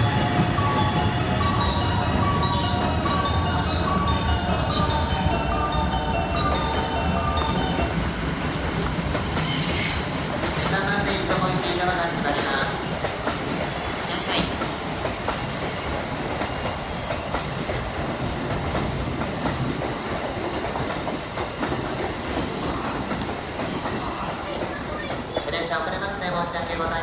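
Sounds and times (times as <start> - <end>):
train wheels clacking on rails: 0.0 - 27.0.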